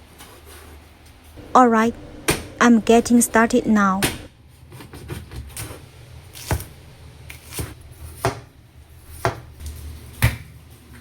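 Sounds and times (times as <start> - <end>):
knife chopping on cutting board: 7.3 - 8.5, 9.1 - 9.5.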